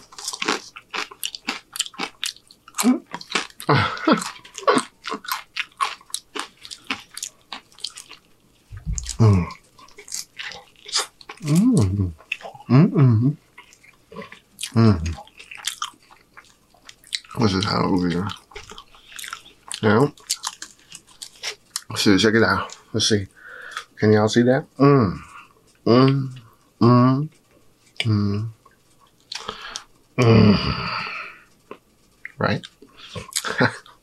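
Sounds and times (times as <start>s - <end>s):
chips crunching: 0.0s - 8.3s, 13.6s - 21.9s
wet chewing: 0.0s - 12.7s, 13.5s - 21.9s
person humming: 8.9s - 9.6s, 11.4s - 13.4s, 14.8s - 15.2s, 30.2s - 31.1s.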